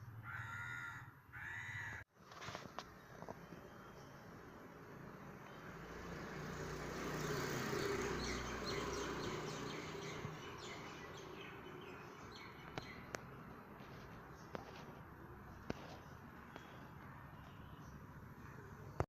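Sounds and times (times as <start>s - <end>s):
bird chirping: 7.7s - 14.9s.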